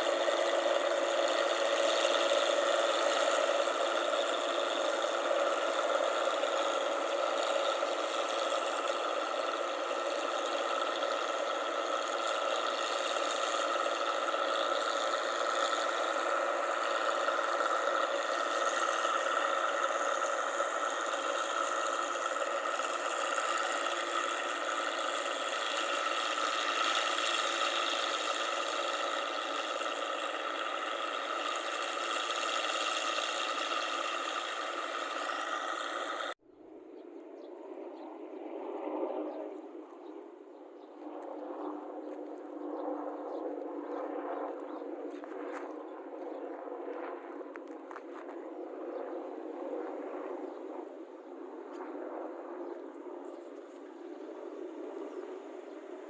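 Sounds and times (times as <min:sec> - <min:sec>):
combine harvester engine running: 0:00.0 - 0:36.4
mechanical whine: 0:00.0 - 0:56.0.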